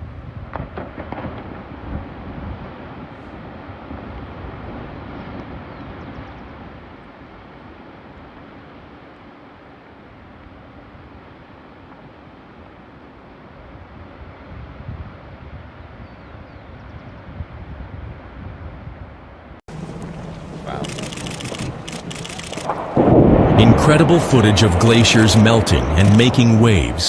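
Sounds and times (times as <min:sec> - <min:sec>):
wind buffeting microphone: 0:19.7 - 0:27.0.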